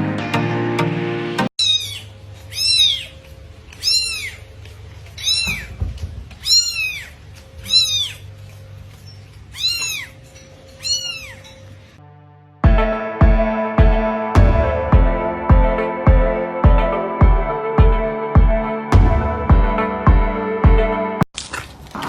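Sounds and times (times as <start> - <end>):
music playing: 0.0 - 1.5, 12.0 - 21.2
cat meowing: 1.6 - 4.5, 5.1 - 5.8, 6.4 - 8.3, 9.5 - 11.6.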